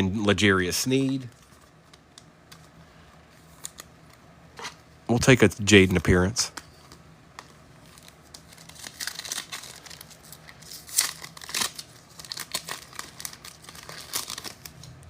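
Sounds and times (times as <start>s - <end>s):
foil wrapper tearing and crinkling: 7.8s - 14.9s.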